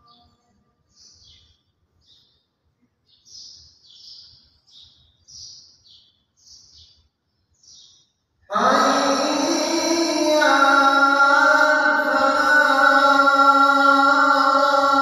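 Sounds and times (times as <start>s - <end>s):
small bird chirping: 0.0s - 8.2s.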